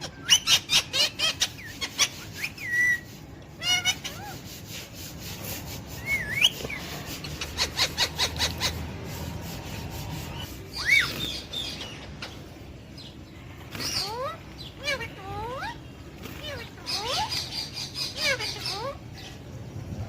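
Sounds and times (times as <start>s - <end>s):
parrot whistling: 0.2s - 4.4s, 10.7s - 11.3s.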